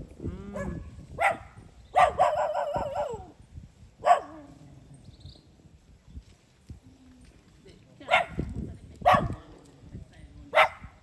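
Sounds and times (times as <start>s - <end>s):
dog barking and yelping: 2.0s - 3.2s.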